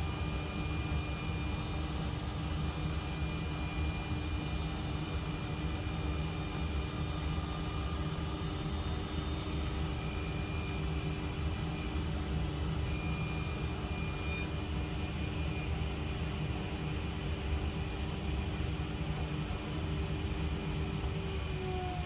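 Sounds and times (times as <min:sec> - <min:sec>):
dust extraction vacuum: 0:00.0 - 0:15.8, 0:20.9 - 0:22.0.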